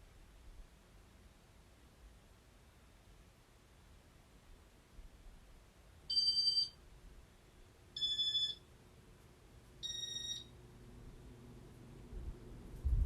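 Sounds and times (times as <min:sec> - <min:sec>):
faint low fan motor hum: 0:00.0 - 0:13.0
short electronic beeps: 0:06.1 - 0:06.7, 0:08.0 - 0:08.6, 0:09.8 - 0:10.5.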